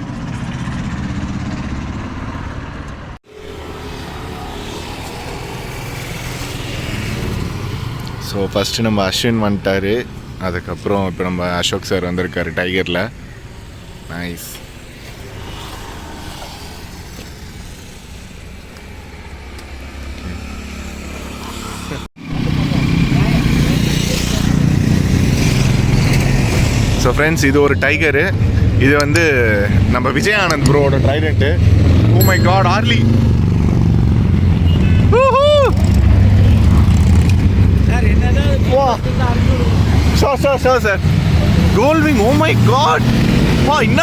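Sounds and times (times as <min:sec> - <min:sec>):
vehicle engine and traffic rumble: 0:00.0 - 0:44.0
vehicle engine humming: 0:32.1 - 0:44.0.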